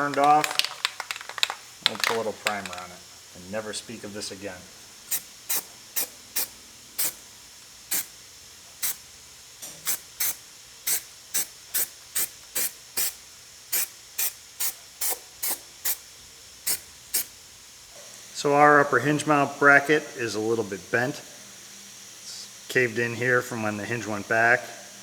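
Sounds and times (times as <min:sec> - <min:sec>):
aerosol spray can hissing: 0:00.0 - 0:17.5.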